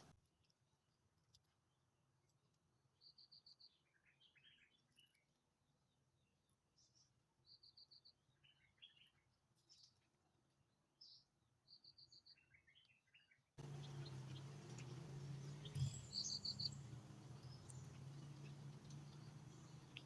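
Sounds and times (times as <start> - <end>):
faint bird chirps: 2.9 - 10.2, 10.9 - 20.0
low steady hum: 13.6 - 20.0.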